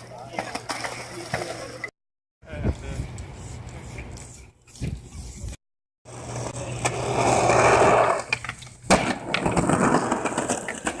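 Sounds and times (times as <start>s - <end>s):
skateboard wheels rolling on concrete: 6.1s - 11.0s
skateboard clacking on ground: 6.3s - 11.0s.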